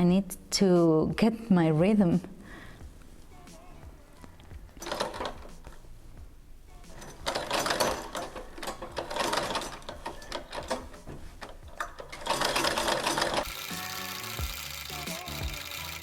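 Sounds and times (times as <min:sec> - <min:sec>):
treadle sewing machine stitching: 0:07.2 - 0:16.0.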